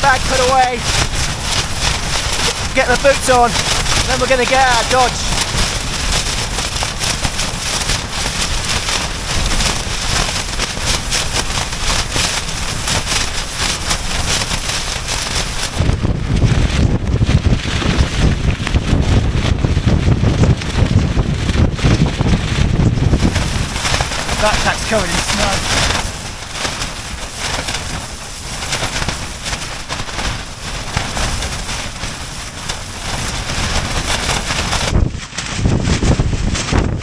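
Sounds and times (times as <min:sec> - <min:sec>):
tent fabric rattling in wind: 0:00.0 - 0:37.0
wind blasting on microphone: 0:00.0 - 0:37.0.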